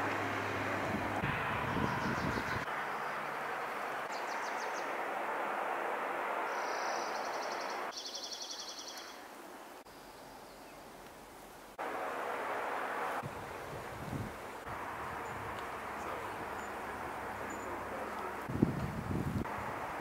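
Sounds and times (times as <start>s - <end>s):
outdoor rushing noise: 0.0s - 8.0s, 11.7s - 20.0s
songbird trilling: 6.5s - 9.2s.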